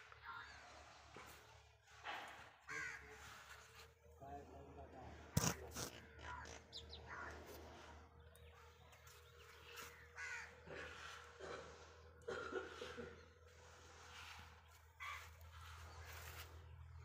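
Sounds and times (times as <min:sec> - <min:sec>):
birds cawing: 0:02.6 - 0:03.6, 0:06.0 - 0:08.0, 0:09.7 - 0:11.4, 0:15.0 - 0:16.4.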